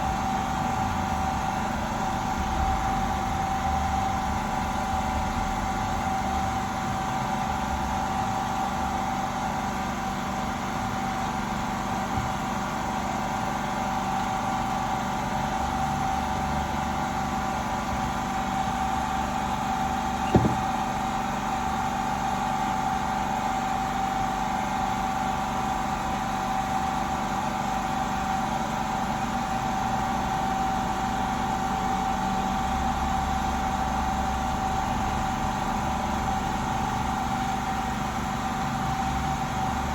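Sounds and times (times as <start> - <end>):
machine hum with whine: 17.0 - 22.2.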